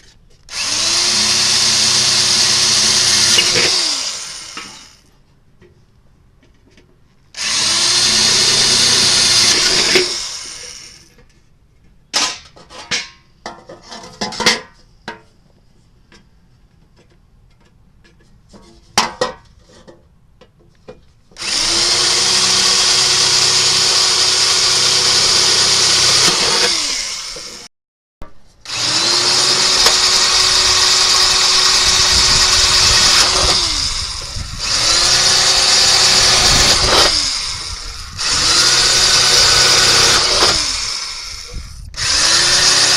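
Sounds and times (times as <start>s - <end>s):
electric power tool motor running: 0.5s - 5.0s, 7.4s - 11.1s, 21.4s - 27.7s, 28.6s - 42.9s.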